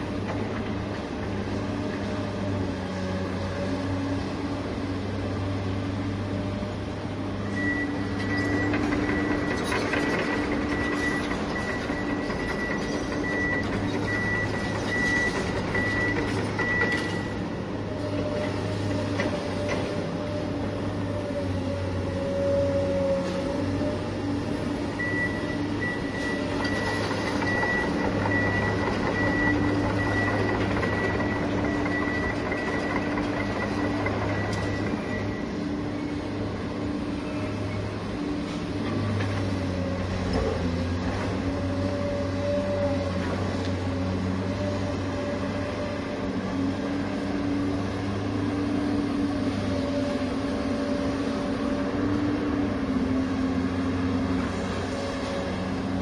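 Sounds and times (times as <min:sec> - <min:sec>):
heavy truck engine running: 0:00.0 - 0:56.0
reversing alarm beeping: 0:07.5 - 0:09.7, 0:10.3 - 0:17.4, 0:25.0 - 0:35.7.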